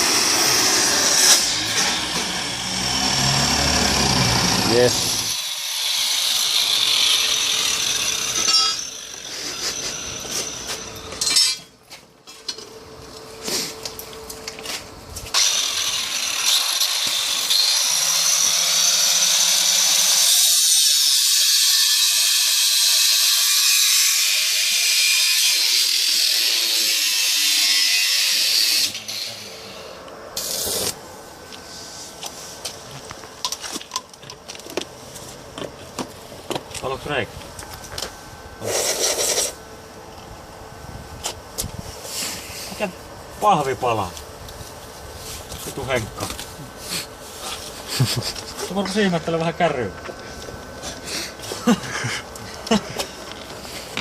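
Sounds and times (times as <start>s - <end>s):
power tool running: 0.0s - 11.3s, 15.3s - 31.0s.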